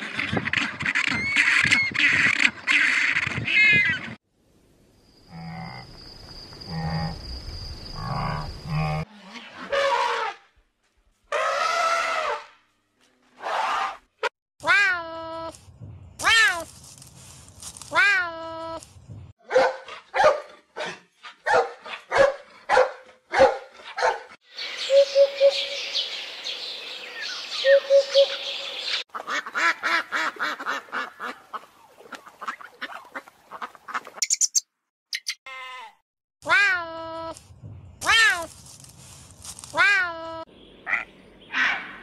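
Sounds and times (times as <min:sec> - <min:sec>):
birdsong: 0:24.5 - 0:29.1, 0:40.5 - 0:42.0
hoopoe calling: 0:24.6 - 0:26.2, 0:27.2 - 0:29.0
high chirps: 0:34.2 - 0:35.4.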